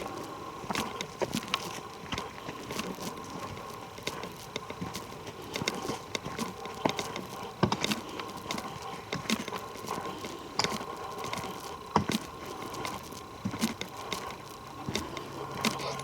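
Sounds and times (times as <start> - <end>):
footsteps on twigs: 0.0 - 16.0.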